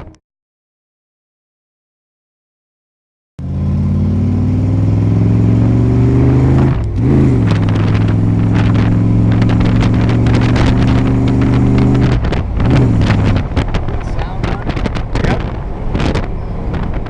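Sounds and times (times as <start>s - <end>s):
car engine running: 3.4s - 17.0s.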